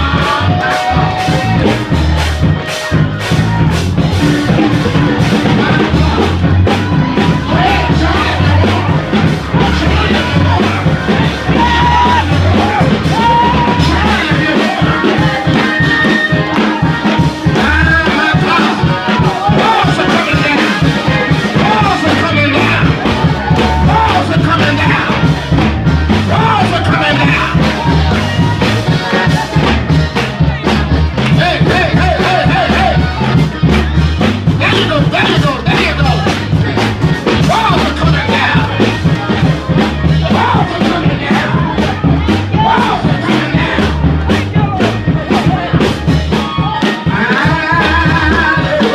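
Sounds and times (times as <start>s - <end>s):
loud fast band music: 0.0s - 48.9s
voices singing and shouting: 0.0s - 48.9s.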